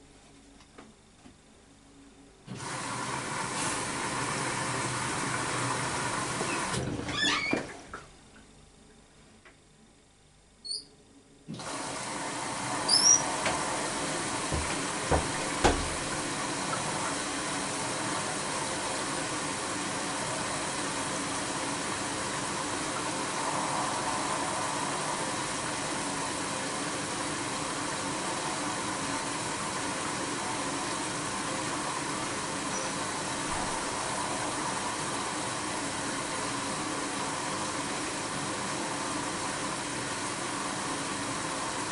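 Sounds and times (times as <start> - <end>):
water hissing into washing machine: 2.5 - 8.1, 11.5 - 41.9
knocks: 14.4 - 16.0.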